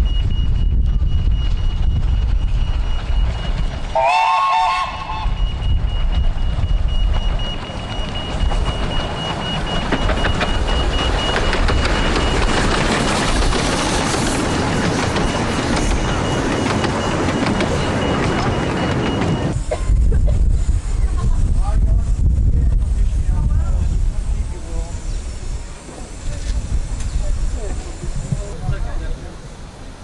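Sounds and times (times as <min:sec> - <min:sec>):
wheels clicking on track: 0:00.0 - 0:20.6
miniature train rumbling: 0:00.0 - 0:30.0.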